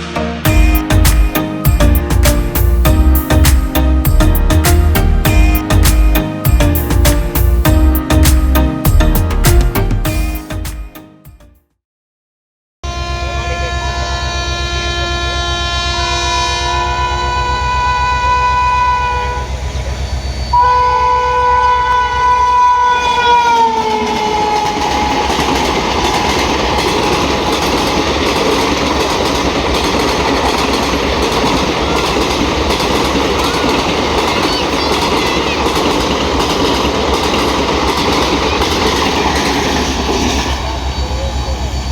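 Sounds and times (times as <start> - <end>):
locomotive horn blasts: 12.8 - 19.6, 20.5 - 25.4
train wheels rumbling on rails: 21.8 - 41.9.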